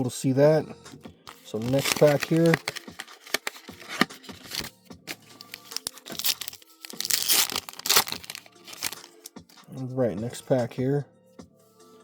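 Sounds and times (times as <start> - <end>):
foil wrapper tearing and crinkling: 1.5 - 9.3.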